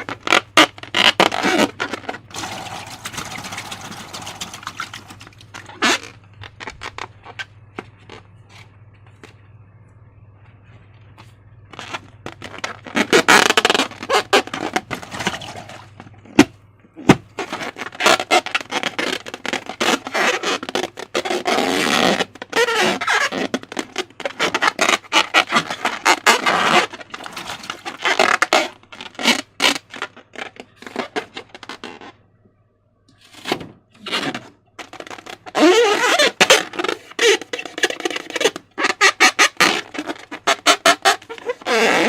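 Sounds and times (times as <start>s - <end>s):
slime squishing by hand: 0.0s - 9.4s.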